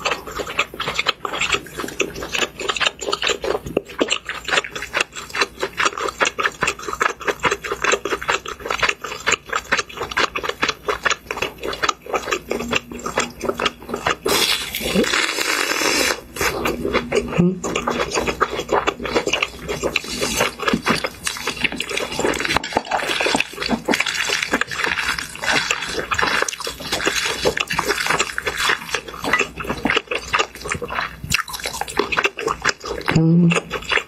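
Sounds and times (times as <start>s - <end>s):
crunchy food being chewed: 0.0s - 34.0s.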